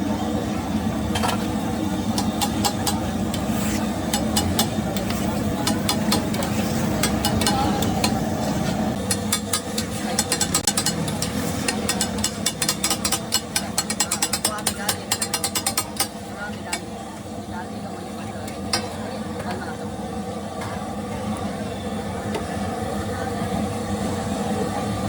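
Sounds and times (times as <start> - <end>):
street traffic rumble: 0.0 - 25.0
metal spatula tapping on griddle: 2.1 - 8.2, 9.0 - 16.9.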